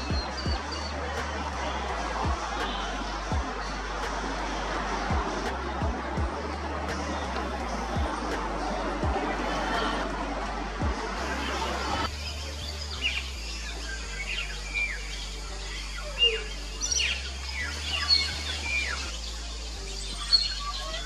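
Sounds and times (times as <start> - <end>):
small birds chirping: 0.0 - 3.8, 11.3 - 21.0
noisy rushing sound: 0.0 - 16.0
quiet background music: 0.0 - 21.0.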